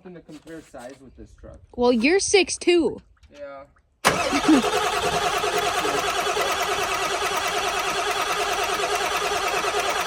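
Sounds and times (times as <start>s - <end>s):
diesel engine idling: 4.1s - 10.0s.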